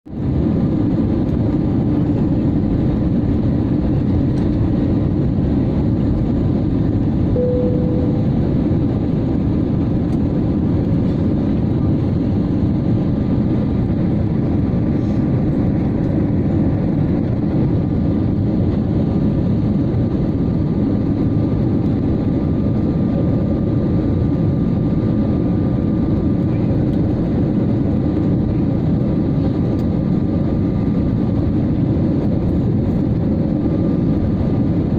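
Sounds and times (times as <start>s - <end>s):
airliner engines roaring: 0.1s - 34.9s
rushing air: 4.8s - 11.5s
faint steady hum: 7.3s - 9.0s
brief cabin tone: 7.4s - 8.6s.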